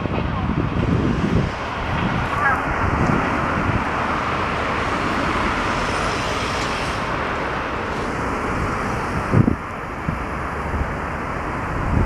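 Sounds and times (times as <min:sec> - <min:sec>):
train coaches rumbling over rails: 0:00.0 - 0:12.0
high hiss: 0:04.1 - 0:11.7.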